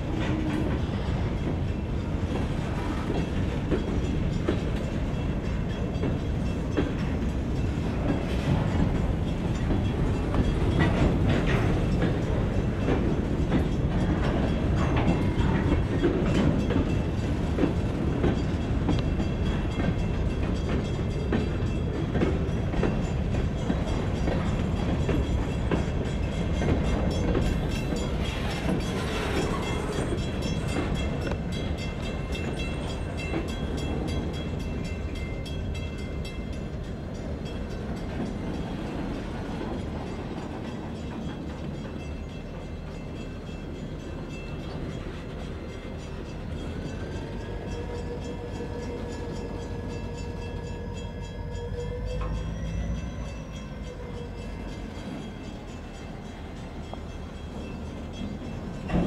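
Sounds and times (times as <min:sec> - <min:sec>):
freight train rolling past: 0:00.0 - 0:59.0.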